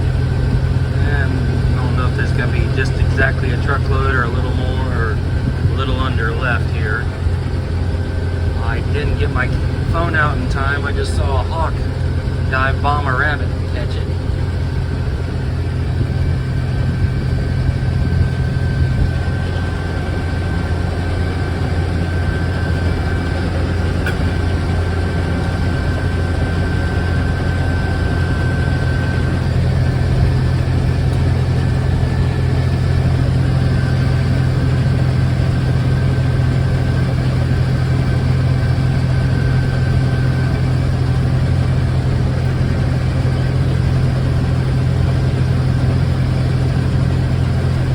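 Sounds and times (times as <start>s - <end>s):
combine harvester engine drone: 0.0s - 47.9s
faint steady whine: 0.0s - 47.9s.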